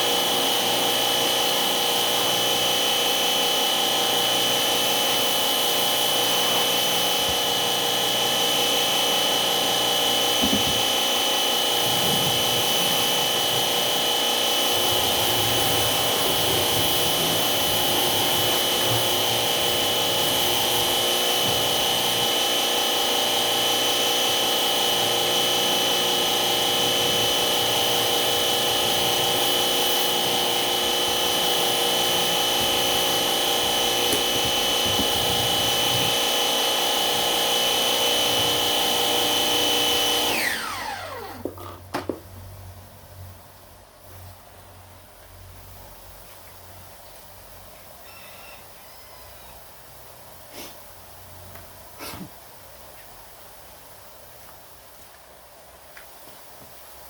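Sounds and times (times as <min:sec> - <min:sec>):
motor whining: 0:00.0 - 0:41.8.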